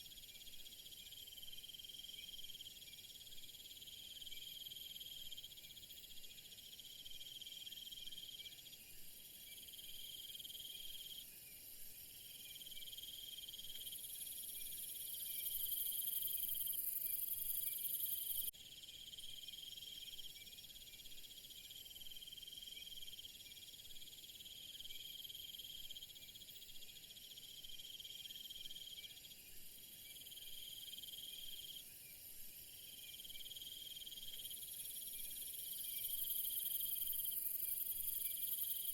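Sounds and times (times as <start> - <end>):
lower insect trill: 0.0 - 38.9
crickets trilling: 32.8 - 38.9.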